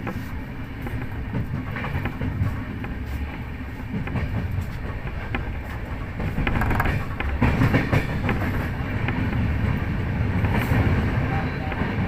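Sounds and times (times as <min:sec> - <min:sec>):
train rumbling on rails: 0:00.0 - 0:12.0
wheel clicks on track: 0:05.1 - 0:09.4.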